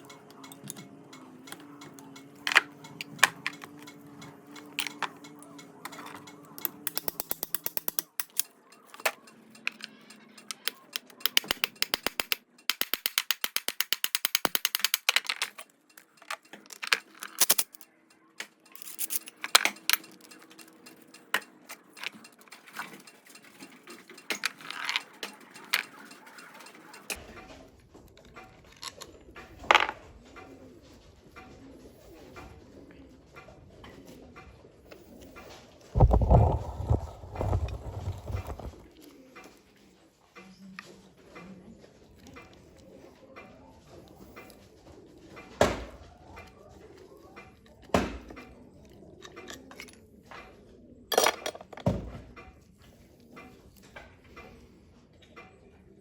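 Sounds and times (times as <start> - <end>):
hand tool clicks and knocks: 5.9 - 22.6
rapid ratchet clicking: 6.6 - 9.6, 10.4 - 17.8.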